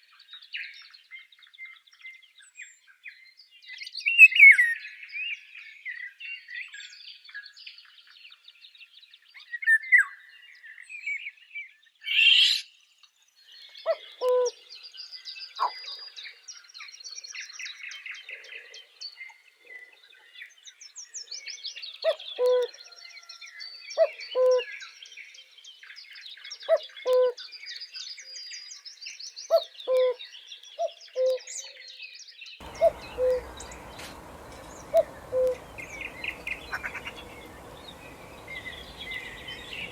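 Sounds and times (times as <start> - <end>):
low hooting call: 32.6 - 39.9
small birds chirping and trilling: 32.6 - 39.9.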